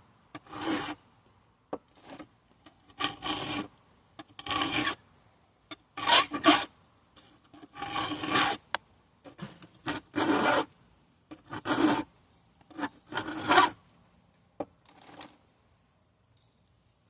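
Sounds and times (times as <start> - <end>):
file rasping on chainsaw chain: 0.4 - 1.0, 2.9 - 3.7, 4.4 - 5.0, 6.0 - 6.7, 7.6 - 8.6, 9.9 - 10.7, 11.4 - 12.0, 12.7 - 13.8.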